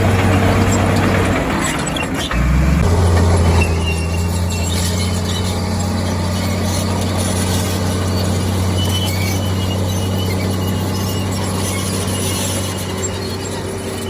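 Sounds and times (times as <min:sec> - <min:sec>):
heavy diesel engine running: 0:00.0 - 0:14.0
brief high squeaks: 0:03.1 - 0:14.0.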